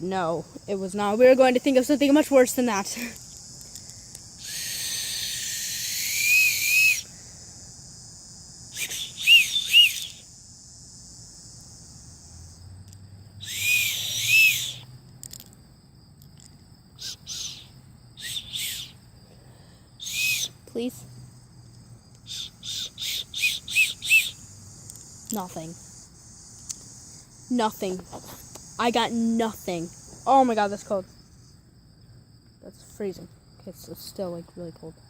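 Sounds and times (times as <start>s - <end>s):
faint insect trilling: 0.0s - 35.0s
bird call whistle chirping: 4.4s - 7.2s, 8.7s - 10.3s, 13.4s - 14.9s, 17.0s - 19.0s, 20.0s - 20.6s, 22.2s - 24.5s.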